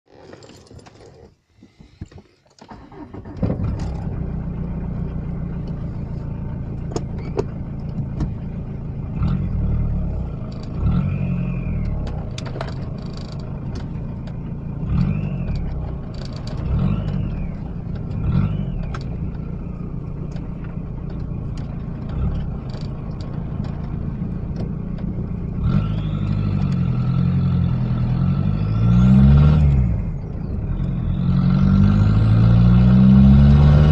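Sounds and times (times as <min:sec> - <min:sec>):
diesel engine cranking: 0:00.1 - 0:33.9
diesel engine idling: 0:02.7 - 0:10.6
engine revving with turbo whine: 0:06.7 - 0:33.9.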